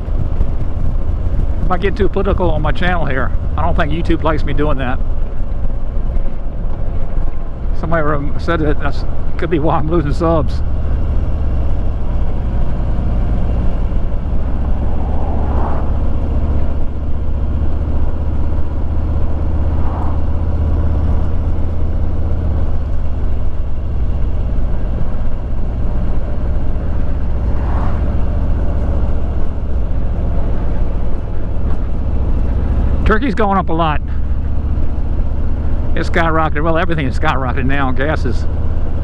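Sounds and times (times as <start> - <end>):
motorcycle engine running: 0.0 - 39.0
road and wind noise: 0.0 - 39.0
rushing sound: 12.4 - 22.9, 24.6 - 34.4.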